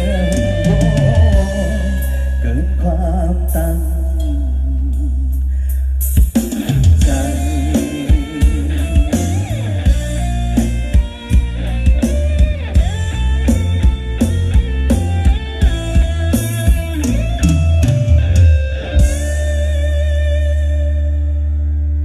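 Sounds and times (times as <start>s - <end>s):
drum kit beat: 0.0s - 2.4s, 6.0s - 20.2s
live rock band playing: 0.0s - 4.4s, 5.7s - 22.0s
bending guitar melody: 0.0s - 4.9s, 6.3s - 22.0s
heavy bass: 0.0s - 22.0s.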